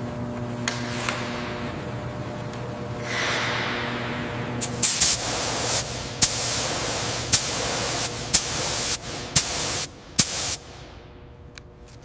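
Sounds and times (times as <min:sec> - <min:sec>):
high-pressure spray hissing: 0:04.6 - 0:10.7.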